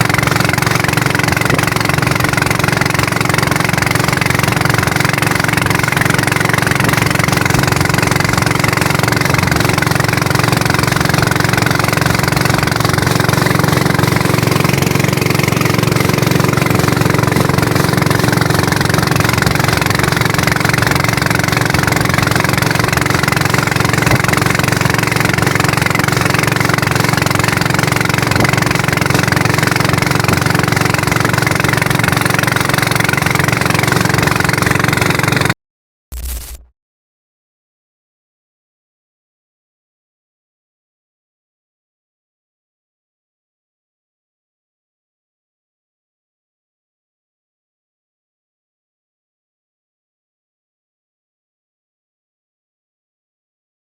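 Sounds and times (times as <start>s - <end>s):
small engine running: 0.0s - 35.6s.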